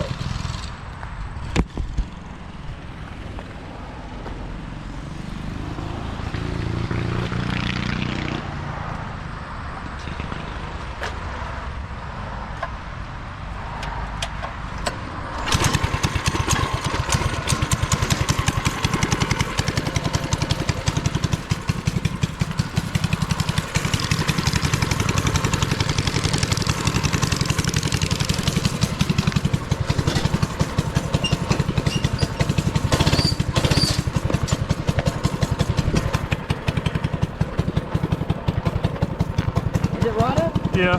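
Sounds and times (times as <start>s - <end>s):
small engine running: 15.4s - 40.9s.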